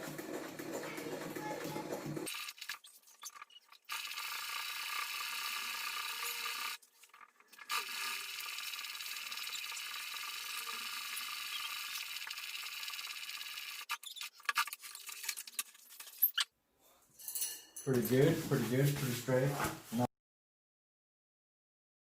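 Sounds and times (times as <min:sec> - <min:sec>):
sewing machine stitching: 0:03.8 - 0:06.8, 0:07.6 - 0:14.2.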